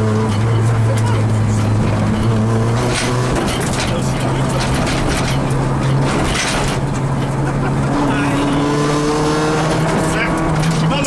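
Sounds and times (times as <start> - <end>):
rally car engine from cabin: 0.0 - 11.0
crackles and rattles: 0.3 - 7.6.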